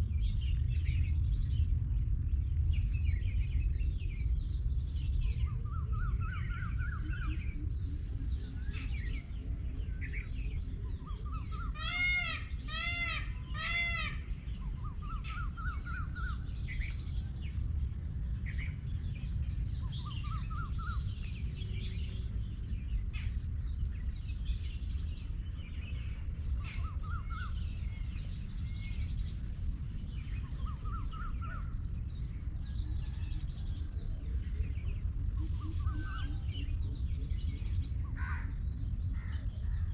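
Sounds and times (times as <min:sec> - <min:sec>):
small birds chirping: 0:00.0 - 0:39.9
steady low rumble: 0:00.0 - 0:39.9
peacock calling: 0:11.1 - 0:17.0, 0:26.4 - 0:31.9, 0:35.2 - 0:38.6.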